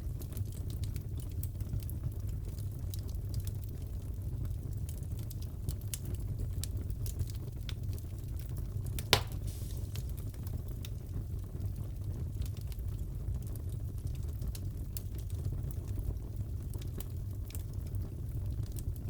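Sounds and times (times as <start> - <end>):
wood fire crackling: 0.0 - 19.0
sharp fire pop: 9.0 - 10.4.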